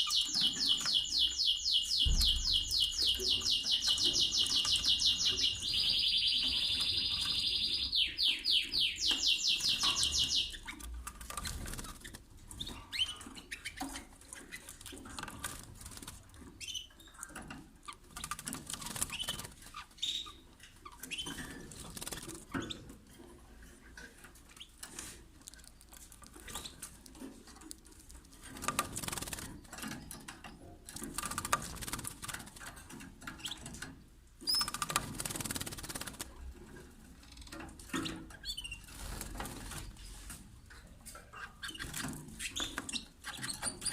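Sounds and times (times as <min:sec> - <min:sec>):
bird chirps: 0:00.0 - 0:11.6, 0:19.0 - 0:21.6
canary singing trill: 0:00.0 - 0:15.3, 0:16.6 - 0:22.9, 0:34.4 - 0:36.0
wing fluttering: 0:09.7 - 0:12.3, 0:18.1 - 0:19.8, 0:21.2 - 0:22.8, 0:24.9 - 0:30.1, 0:34.5 - 0:36.4.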